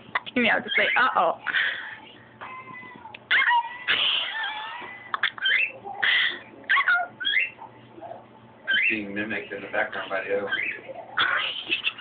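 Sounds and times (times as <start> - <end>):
pet bird chirping and whistling: 0.5 - 1.2, 3.3 - 5.8, 6.7 - 7.6, 8.7 - 9.0, 10.5 - 12.0.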